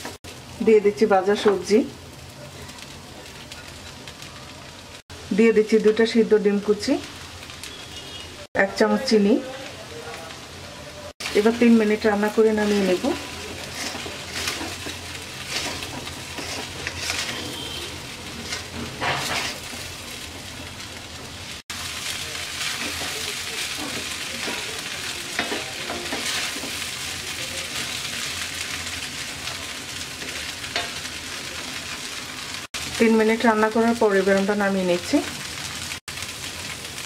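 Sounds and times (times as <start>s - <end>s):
food sizzling in oil: 0.0s - 37.0s
wooden spatula scraping pan: 12.6s - 19.9s.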